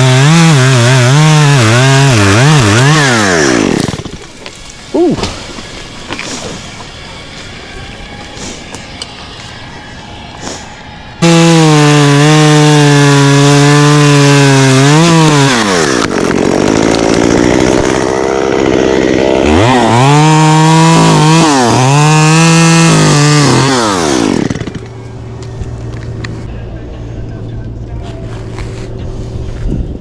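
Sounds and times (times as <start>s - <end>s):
chainsaw cutting wood: 0.0s - 4.6s, 11.2s - 24.9s.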